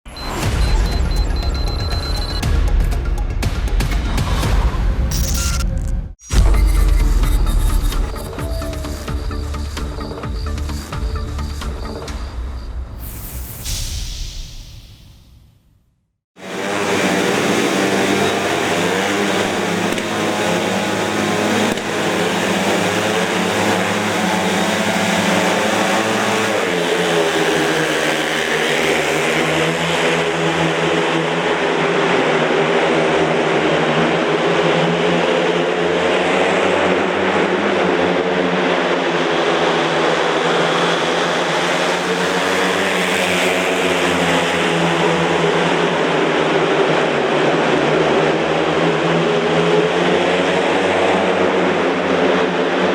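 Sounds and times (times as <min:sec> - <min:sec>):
motorcycle engines racing: 0:16.4 - 0:52.9.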